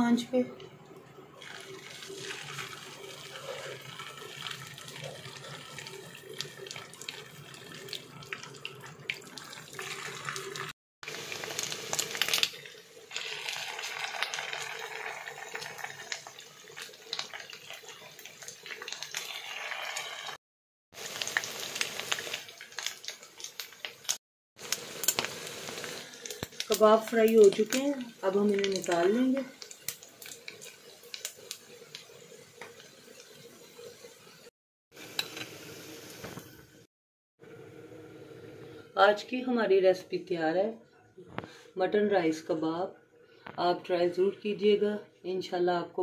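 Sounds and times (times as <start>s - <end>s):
food sizzling with crackling pops: 0.1s - 20.4s, 21.0s - 36.9s.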